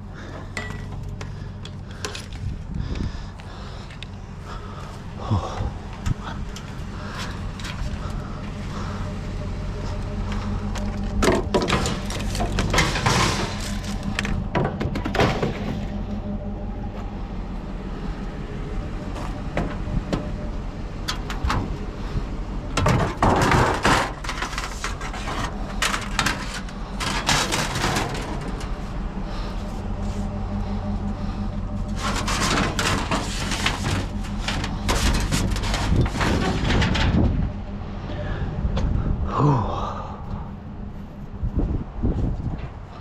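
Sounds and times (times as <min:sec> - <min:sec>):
low engine hum: 0:00.0 - 0:43.0
scrap metal knocking and clattering: 0:00.3 - 0:02.5, 0:10.2 - 0:16.1, 0:22.7 - 0:29.0, 0:30.6 - 0:37.6.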